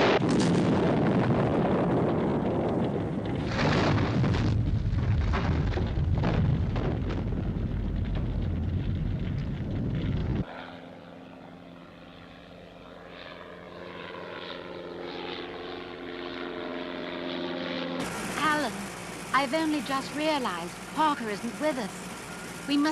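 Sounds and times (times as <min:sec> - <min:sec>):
propeller plane engine droning: 0:00.0 - 0:06.1, 0:07.0 - 0:22.9
rumbling explosions: 0:00.0 - 0:10.5.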